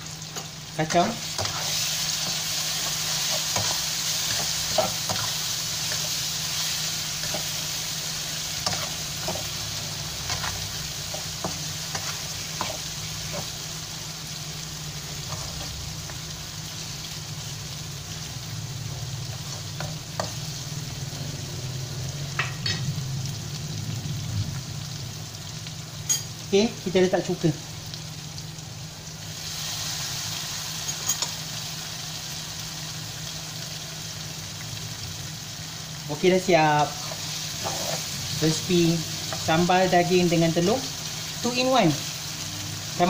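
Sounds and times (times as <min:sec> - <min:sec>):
food sizzling in a frying pan: 0:00.0 - 0:43.0
spatula scraping a pan: 0:37.0 - 0:38.1.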